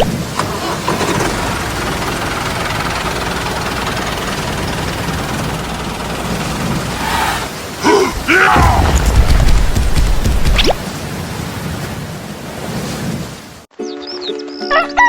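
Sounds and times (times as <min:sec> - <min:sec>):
small tractor engine running: 0:00.0 - 0:07.5.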